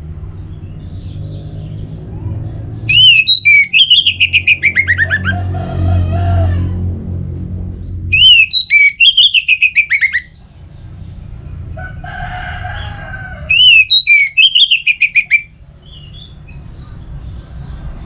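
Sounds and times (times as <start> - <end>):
low drawn-out bird call: 2.0 - 6.8, 7.8 - 10.4, 12.8 - 17.2
bird whistling falling notes: 2.9 - 5.3, 8.1 - 10.3
low hum: 4.2 - 8.5.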